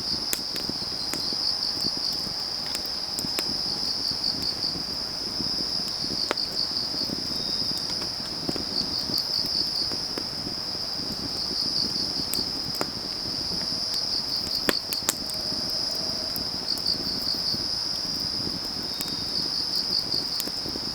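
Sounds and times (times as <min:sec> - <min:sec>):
crickets trilling: 0:00.0 - 0:20.9
wood fire crackling: 0:00.0 - 0:20.9
logs popping: 0:00.3 - 0:15.9.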